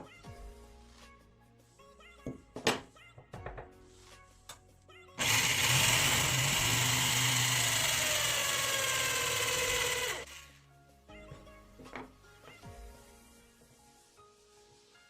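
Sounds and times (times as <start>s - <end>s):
electric power tool cutting wood: 5.2s - 10.5s.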